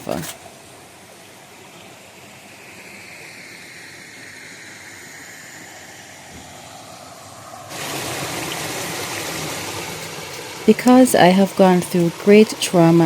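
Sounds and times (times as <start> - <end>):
river water rushing: 5.0 - 13.0.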